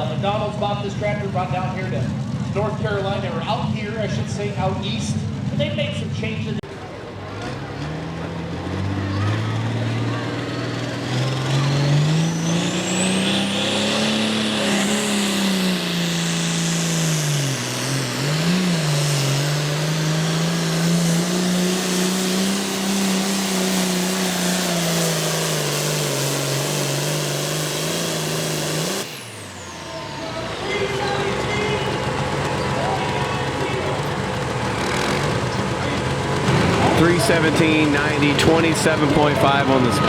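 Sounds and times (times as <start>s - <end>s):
tractor diesel engine under load: 0.0s - 40.0s.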